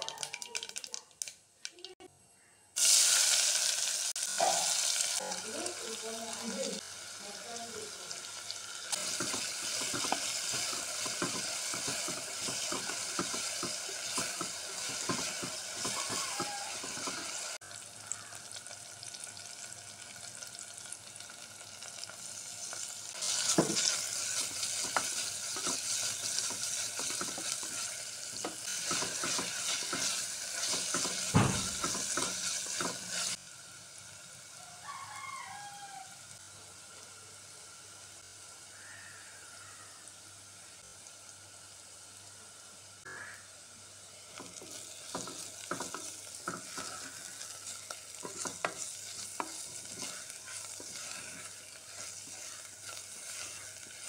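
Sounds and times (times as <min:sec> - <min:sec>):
onions sizzling in oil: 0:02.8 - 0:54.0
spatula scraping metal pot: 0:48.2 - 0:54.0.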